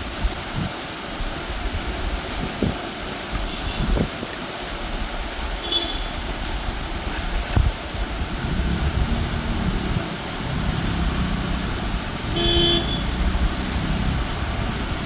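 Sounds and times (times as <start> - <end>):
gusty wind: 0.0 - 15.0
steady rain: 0.0 - 15.0
vehicle horn toot: 5.6 - 6.2, 12.3 - 13.3.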